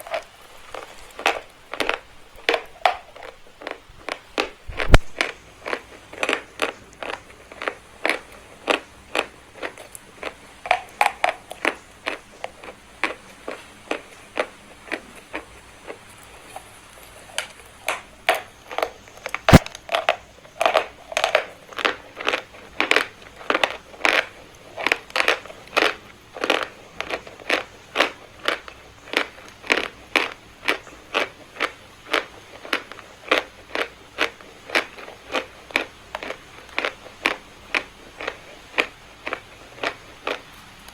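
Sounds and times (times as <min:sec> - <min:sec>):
sharp chalk crack: 0:01.2 - 0:12.2, 0:16.6 - 0:28.6.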